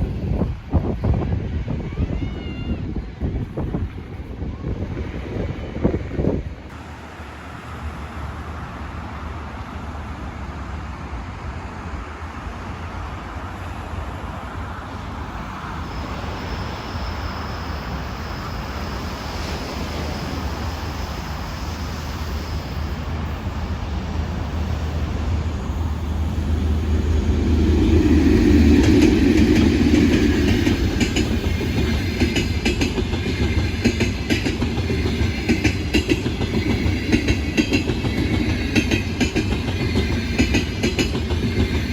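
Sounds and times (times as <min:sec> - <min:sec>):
passenger train rumbling past: 0:00.0 - 0:41.9
wheels clacking over rail joints: 0:24.6 - 0:41.9.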